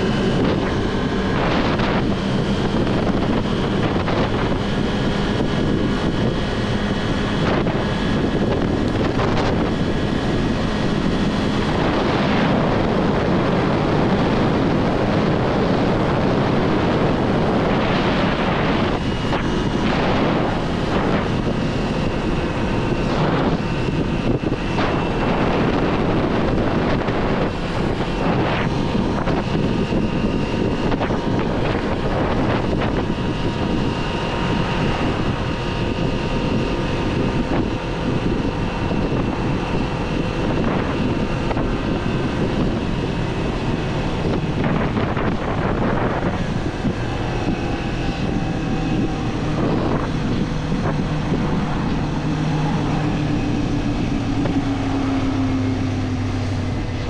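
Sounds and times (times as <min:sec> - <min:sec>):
heavy wind noise: 0:00.0 - 0:57.0
motorcycle engine running: 0:00.0 - 0:57.0.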